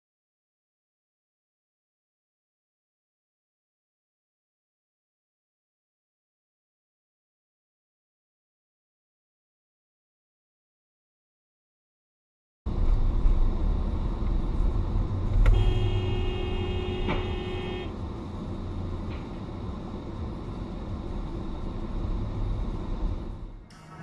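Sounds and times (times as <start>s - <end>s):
road and engine rumble: 12.7s - 24.0s
car horn blast: 15.5s - 18.0s.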